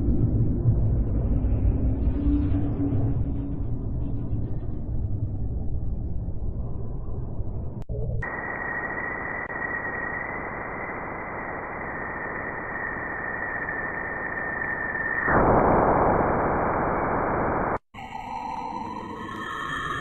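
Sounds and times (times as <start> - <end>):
static hiss: 8.2 - 17.8.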